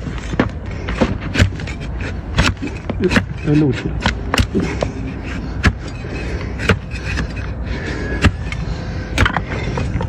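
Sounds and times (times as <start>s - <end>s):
hoof trimming cracks: 0.0s - 10.0s
steady background noise: 0.0s - 10.0s.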